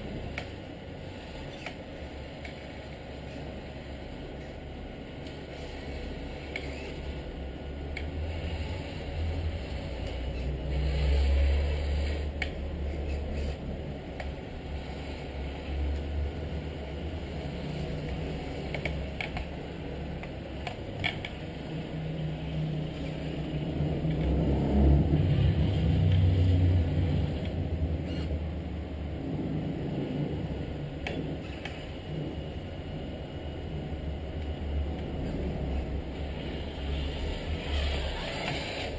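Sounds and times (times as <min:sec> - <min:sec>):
toy truck motor drone: 0:05.5 - 0:07.2, 0:08.3 - 0:12.4, 0:13.1 - 0:13.6, 0:14.2 - 0:15.8, 0:27.4 - 0:28.3, 0:31.4 - 0:32.0, 0:36.4 - 0:38.9.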